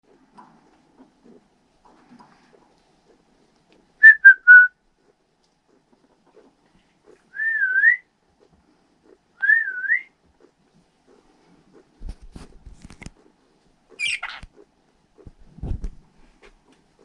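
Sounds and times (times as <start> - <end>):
person whistling: 4.0 - 4.7, 7.4 - 8.0, 9.4 - 10.1.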